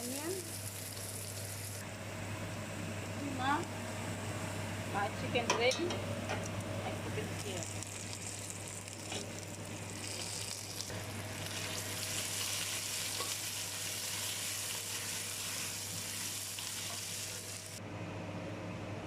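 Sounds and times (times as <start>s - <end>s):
chicken sizzling in a pan: 0.0s - 1.8s, 6.6s - 17.8s.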